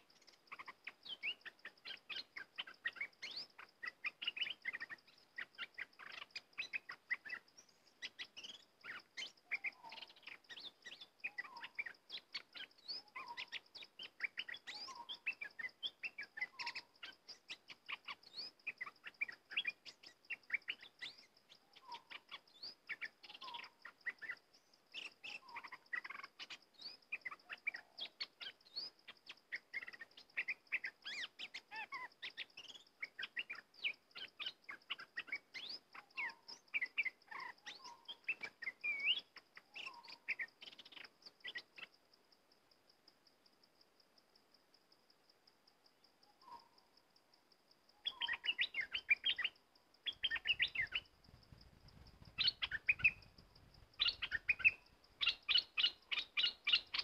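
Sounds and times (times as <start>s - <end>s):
birds chirping and calling: 0.0s - 41.9s, 48.0s - 57.0s
lower bird call: 47.9s - 57.0s.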